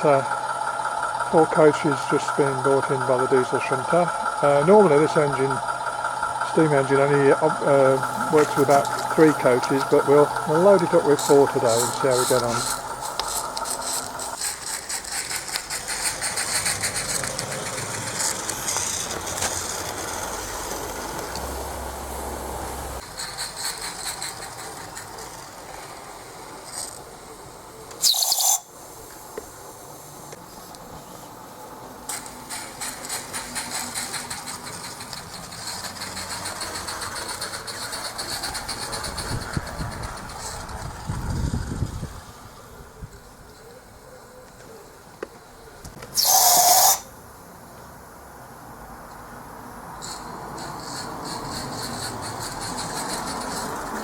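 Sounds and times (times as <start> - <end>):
high-pitched squeal: 0.0 - 25.3, 27.9 - 28.7, 46.2 - 47.1
model train wheels clicking: 0.0 - 42.1, 45.8 - 47.1, 49.9 - 54.0.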